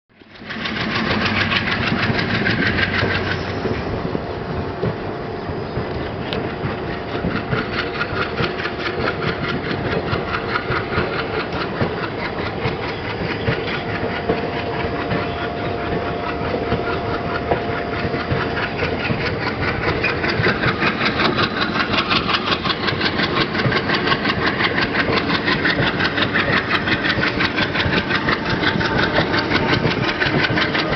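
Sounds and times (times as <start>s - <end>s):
train rumbling and clattering: 0.1s - 30.9s.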